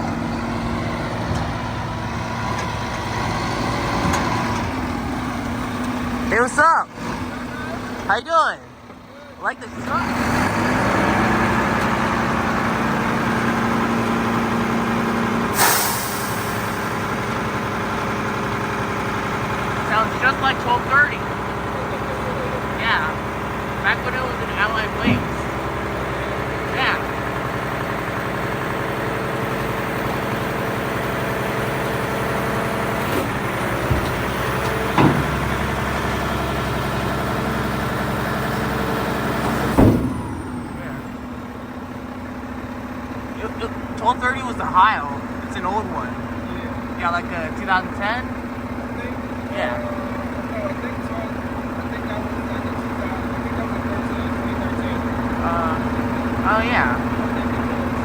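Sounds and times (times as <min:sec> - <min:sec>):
garbage truck engine running: 0:00.0 - 0:58.0
brief sharp sounds from truck: 0:15.4 - 0:17.5, 0:39.2 - 0:41.1
burst of hiss: 0:15.6 - 0:16.6.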